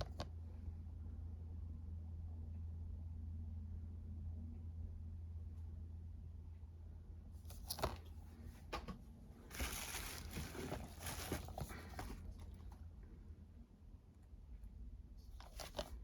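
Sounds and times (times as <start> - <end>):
low steady hum: 0.0 - 16.0
packaging rustling and crinkling: 9.5 - 12.8.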